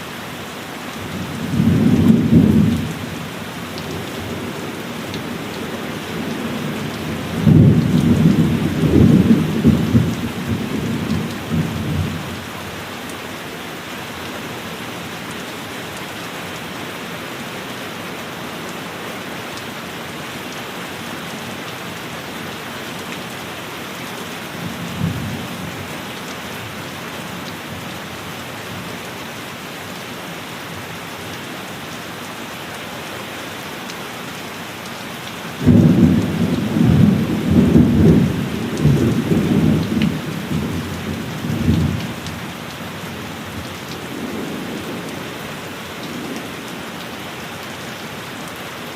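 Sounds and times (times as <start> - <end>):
heavy rain on a roof: 0.0 - 48.9
low rumble of thunder: 1.1 - 3.3, 4.0 - 12.4, 35.6 - 42.6.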